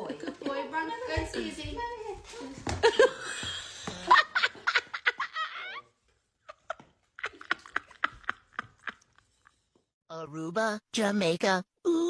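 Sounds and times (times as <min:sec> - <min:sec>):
person laughing: 0:06.5 - 0:09.3.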